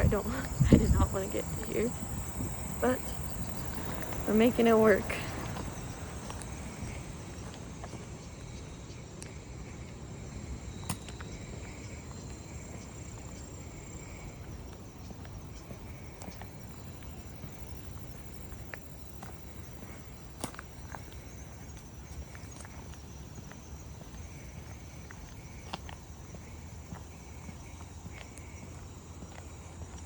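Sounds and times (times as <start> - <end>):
low outdoor rumble: 0.0 - 23.0
insects trilling: 0.0 - 30.0.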